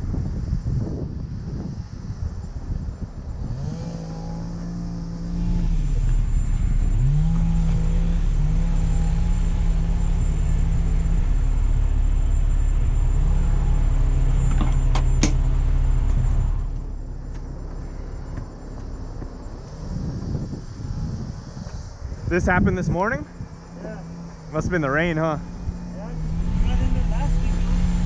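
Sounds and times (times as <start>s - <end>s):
deep steady rumble: 0.0s - 28.0s
tow truck engine revving: 3.3s - 28.0s.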